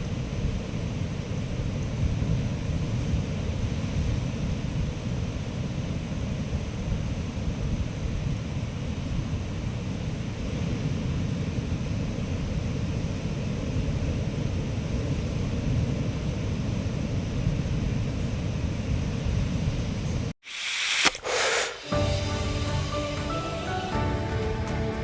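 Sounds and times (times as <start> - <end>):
short loud hiss: 20.4 - 24.0.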